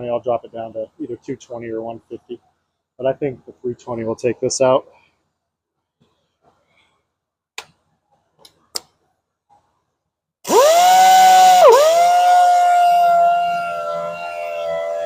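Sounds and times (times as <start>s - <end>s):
power sander motor whine: 10.5s - 15.0s.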